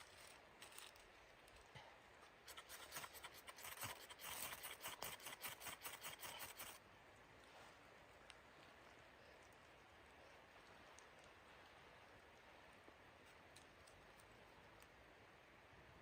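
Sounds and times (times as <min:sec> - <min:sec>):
rough scraping strokes: 0:02.5 - 0:06.8.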